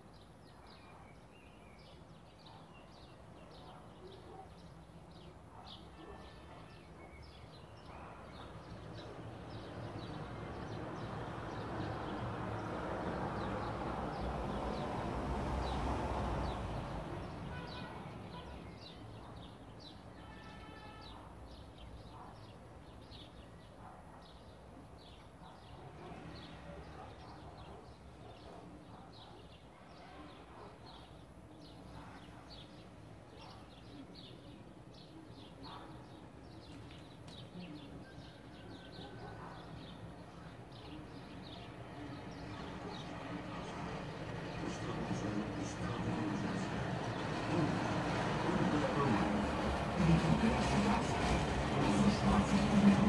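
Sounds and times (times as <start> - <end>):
small birds chirping: 0.0 - 53.0
broad rushing noise: 43.5 - 53.0.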